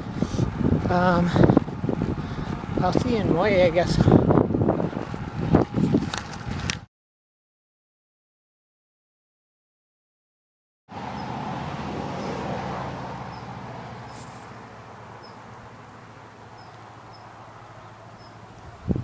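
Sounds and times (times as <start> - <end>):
vehicle passing on highway: 0.0 - 6.8, 10.9 - 19.0.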